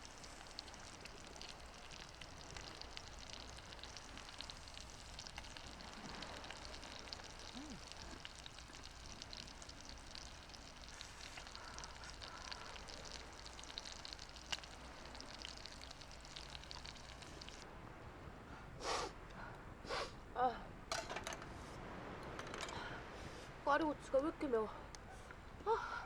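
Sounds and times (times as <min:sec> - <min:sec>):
food sizzling in a pan: 0:00.0 - 0:17.6.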